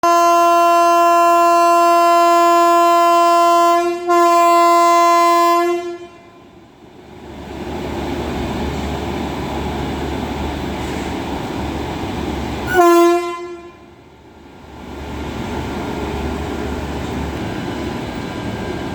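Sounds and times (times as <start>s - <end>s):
locomotive horn blast: 0.0s - 6.5s, 12.7s - 13.9s
train rumbling on track: 0.0s - 18.9s.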